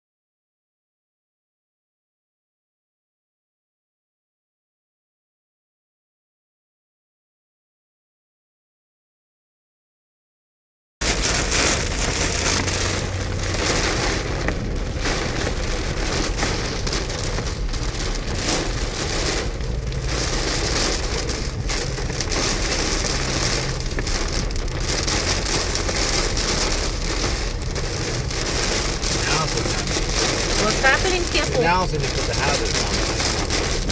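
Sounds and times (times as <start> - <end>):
heavy rain on car roof: 11.0 - 33.9.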